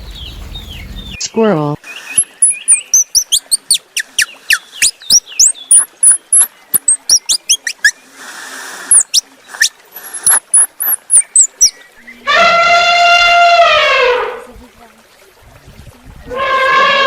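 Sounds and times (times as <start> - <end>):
squirrel chirping: 1.9 - 8.0, 8.9 - 11.8.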